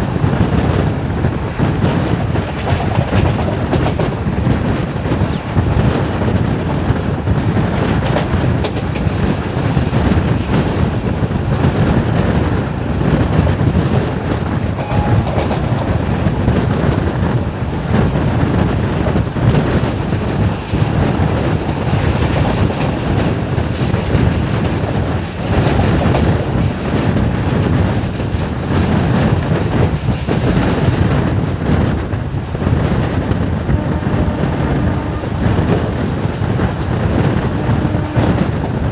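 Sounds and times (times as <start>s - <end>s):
train rumble: 0.0s - 38.9s
wheels clicking over rail joints: 0.1s - 14.7s.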